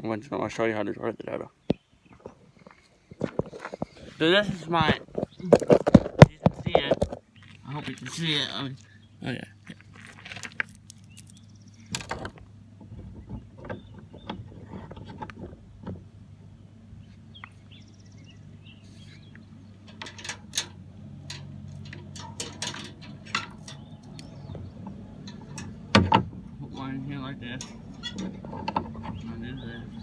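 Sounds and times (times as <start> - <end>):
small hard parts clicking: 9.7 - 12.4, 19.9 - 26.2.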